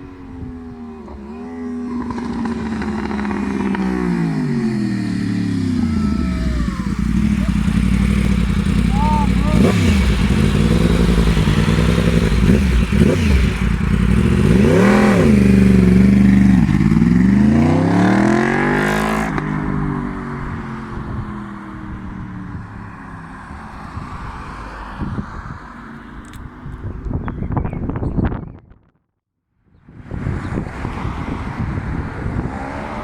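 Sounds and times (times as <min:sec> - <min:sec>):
motorcycle engine revving and accelerating: 0:00.4 - 0:22.6, 0:30.0 - 0:33.0.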